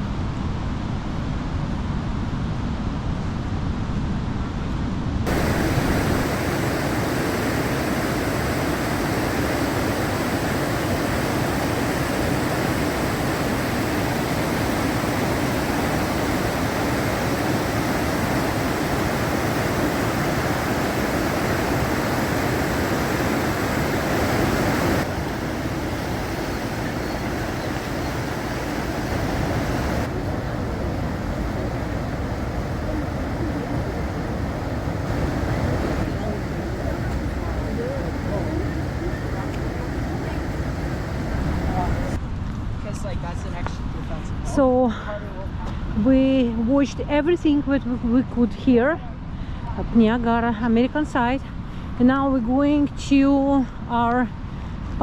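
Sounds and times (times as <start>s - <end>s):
waterfall roaring: 5.3s - 42.2s.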